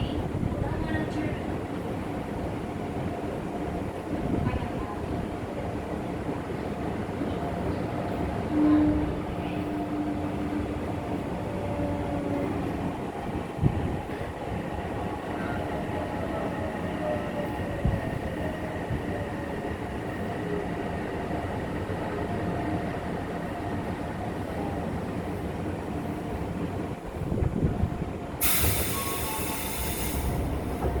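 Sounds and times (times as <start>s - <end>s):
wheels rumbling on track: 26.9s - 31.0s
loud air hiss: 28.4s - 30.9s.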